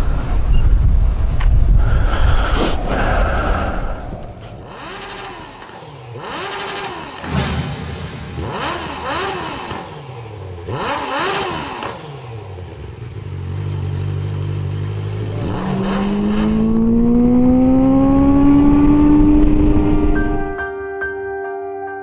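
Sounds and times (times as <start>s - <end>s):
motorcycle engine revving: 4.3s - 20.5s.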